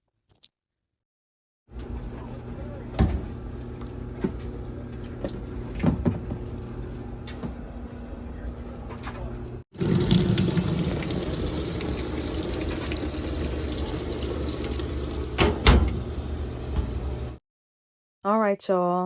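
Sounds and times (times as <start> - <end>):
water rushing into washing machine: 9.7 - 17.4.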